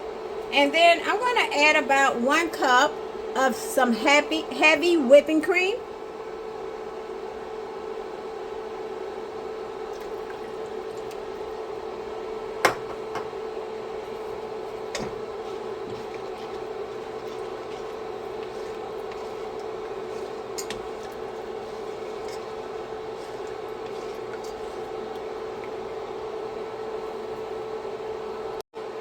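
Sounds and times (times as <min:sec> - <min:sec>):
broth bubbling in a pan: 0:09.6 - 0:28.2
utensil clinking on a pan: 0:14.9 - 0:25.8.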